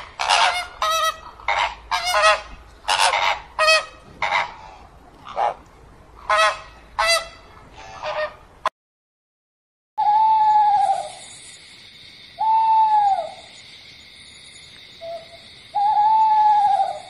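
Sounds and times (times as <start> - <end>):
flamingos honking: 0.0 - 5.6, 6.2 - 8.4.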